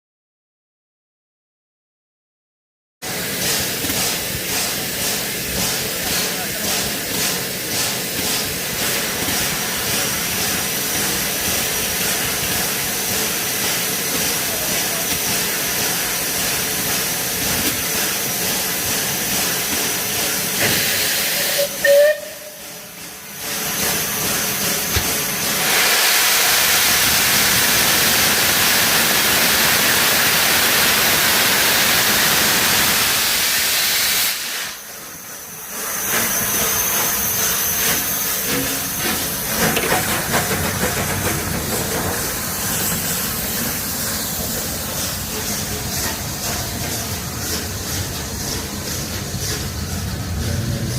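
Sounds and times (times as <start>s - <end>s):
steam hissing: 3.0s - 50.9s.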